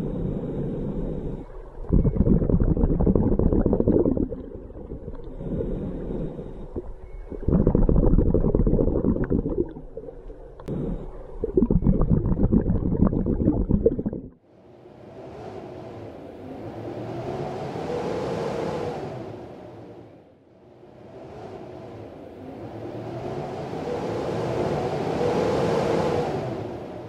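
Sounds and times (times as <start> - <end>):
diver breathing underwater: 0.0 - 14.3
exhaled bubbles underwater: 1.4 - 14.4.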